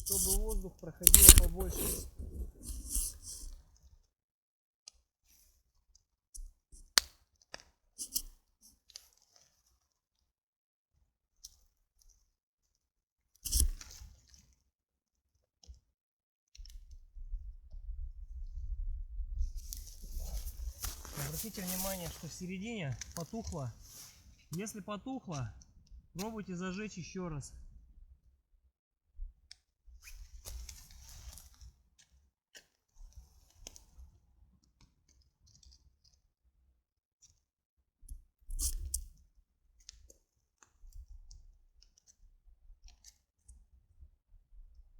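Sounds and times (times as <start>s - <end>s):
campfire logs crackling: 0.0s - 3.2s, 19.7s - 25.5s
loud crunching scrape: 0.0s - 3.4s, 19.6s - 24.7s
faint clicks of sticks: 20.3s - 25.5s.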